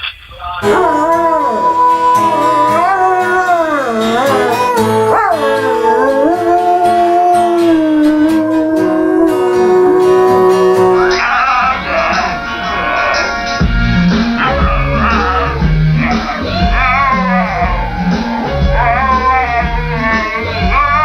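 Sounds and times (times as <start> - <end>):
dog howling: 0.6 - 21.0
music playing: 0.6 - 21.0.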